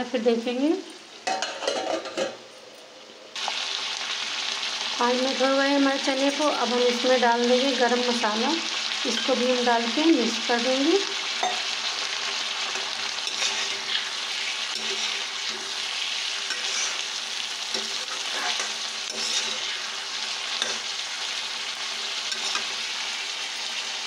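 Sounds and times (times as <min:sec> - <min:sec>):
food sizzling in a pan: 0:00.0 - 0:24.0
spatula scraping a pan: 0:12.7 - 0:20.9, 0:22.2 - 0:23.3.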